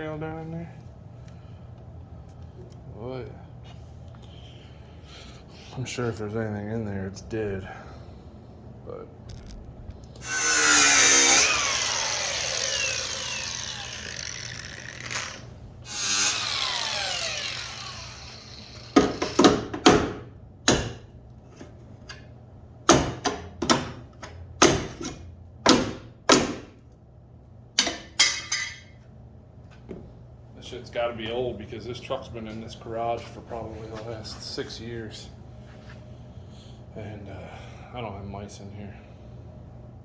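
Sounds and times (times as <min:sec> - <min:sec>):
power tool running: 0:10.1 - 0:19.7.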